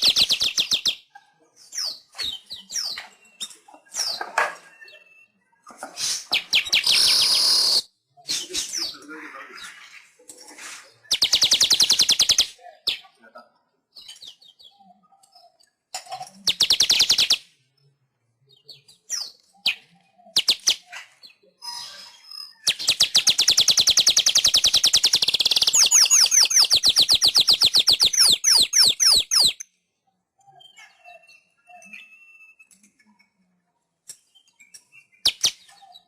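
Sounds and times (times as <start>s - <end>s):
bird chattering trill: 22.6s - 29.6s.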